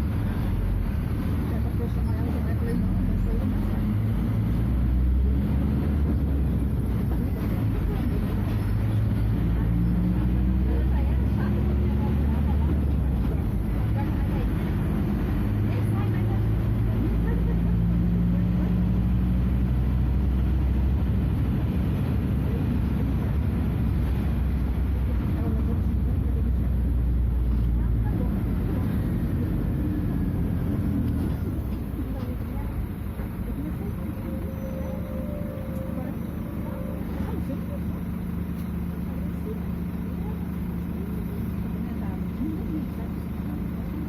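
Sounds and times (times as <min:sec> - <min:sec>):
diesel engine droning: 0:00.0 - 0:44.0.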